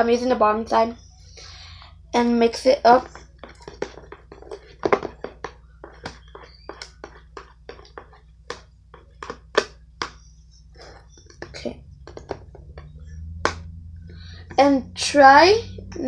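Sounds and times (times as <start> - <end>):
spoon tapping while mixing cream: 3.0 - 13.6.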